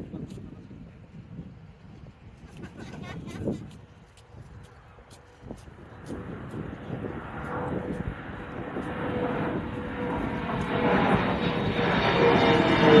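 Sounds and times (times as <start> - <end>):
jet airliner taking off: 5.8 - 13.0.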